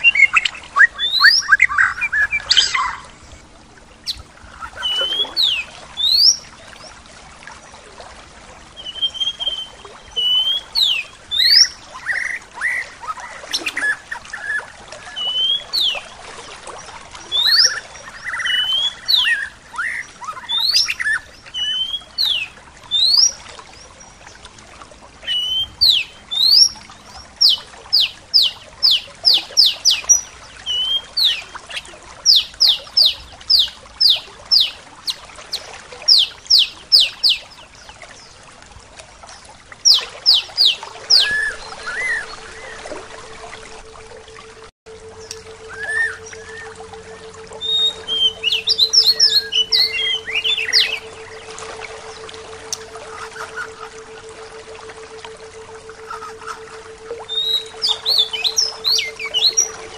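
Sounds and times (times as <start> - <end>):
bird whistling rising notes: 0.0 - 3.1, 4.0 - 6.4, 8.8 - 16.1, 17.3 - 23.3, 25.3 - 26.8, 39.8 - 59.9
bird chattering trill: 45.2 - 54.2, 55.9 - 59.9.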